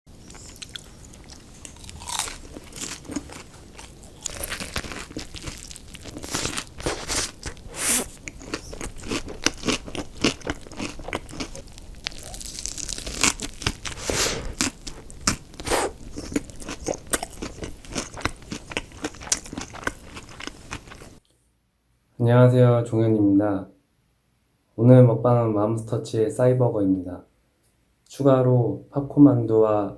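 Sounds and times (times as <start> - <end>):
crunchy chewing of fried food: 0.1 - 21.2.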